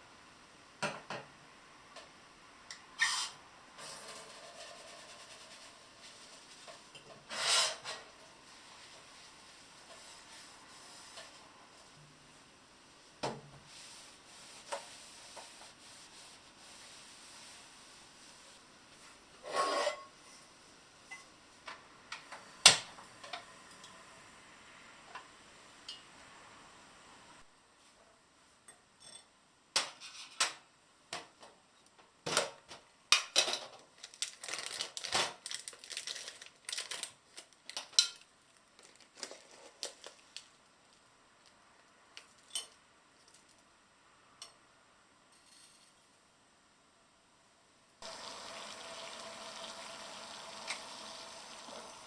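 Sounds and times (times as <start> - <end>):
dishes and utensils clinking: 19.4 - 20.5.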